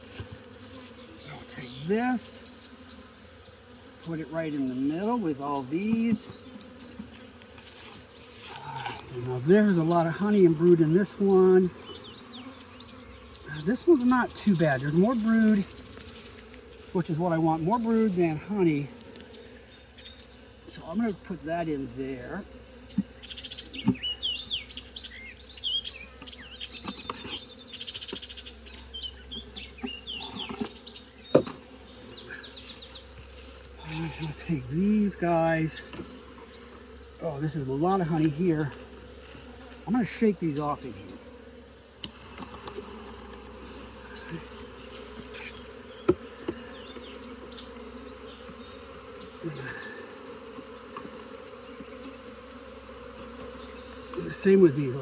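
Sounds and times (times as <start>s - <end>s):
wooden knocks of hive frames: 0.0s - 1.1s, 5.8s - 8.2s, 22.8s - 24.5s, 26.1s - 28.4s, 29.2s - 31.8s, 44.3s - 54.6s
bees buzzing: 0.0s - 55.0s
songbirds chirping: 0.0s - 55.0s.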